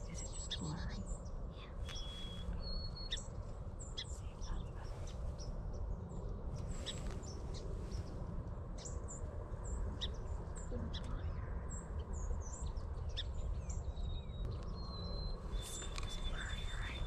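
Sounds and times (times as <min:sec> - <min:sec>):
small birds chirping: 0:00.0 - 0:17.0
whistled bird notes: 0:01.6 - 0:03.3, 0:12.4 - 0:17.0.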